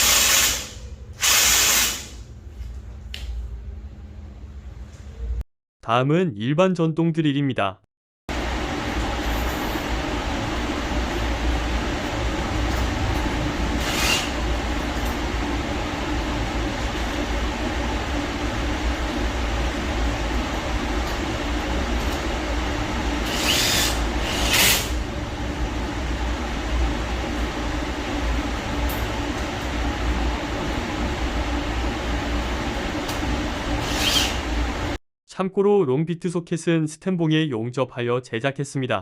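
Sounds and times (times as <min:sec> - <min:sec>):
cordless drill running under load: 0:00.0 - 0:02.2, 0:13.8 - 0:14.3, 0:23.2 - 0:25.0, 0:33.8 - 0:34.4.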